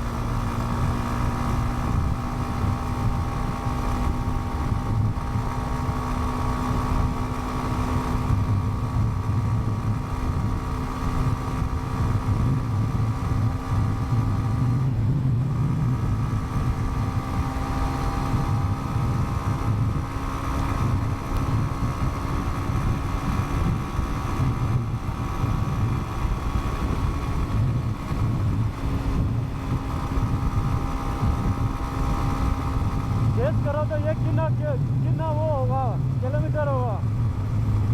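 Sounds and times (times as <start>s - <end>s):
motorcycle engine and road hum: 0.0s - 37.9s
wind rushing over microphone: 0.0s - 37.9s.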